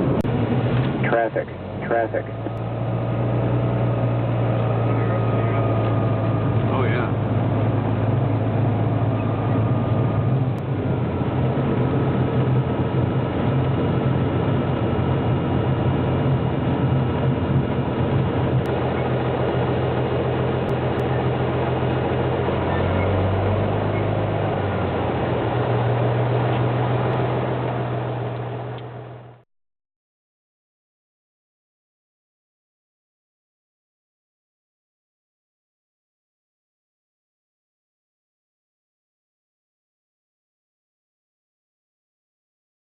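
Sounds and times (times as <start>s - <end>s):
propeller airplane engine droning: 0.0s - 29.4s.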